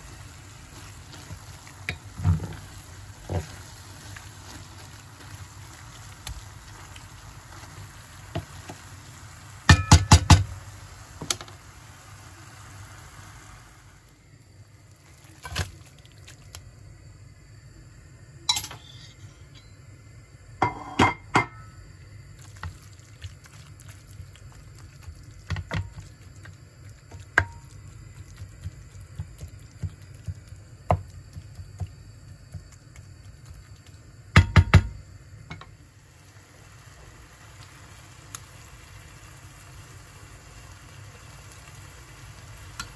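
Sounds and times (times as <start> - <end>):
utensils clinking on cookware: 18.5 - 19.8, 20.6 - 21.6.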